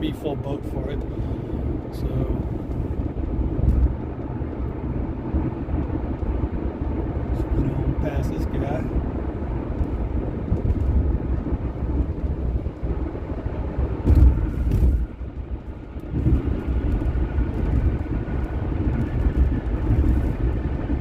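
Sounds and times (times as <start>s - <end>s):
vehicle road and engine rumble: 0.0s - 21.0s
thump: 14.0s - 15.0s.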